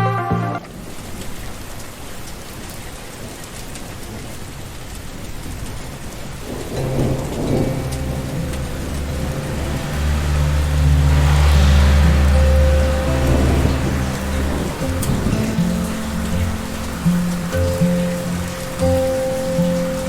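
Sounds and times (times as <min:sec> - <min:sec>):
steady rain falling: 0:00.0 - 0:20.0
thunder rumbling: 0:06.3 - 0:20.0.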